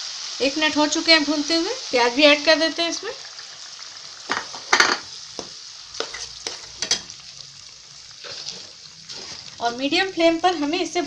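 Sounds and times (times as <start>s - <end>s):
paste sizzling in hot oil: 0.0s - 11.0s
spoon scraping pan: 4.3s - 7.4s, 8.1s - 10.8s.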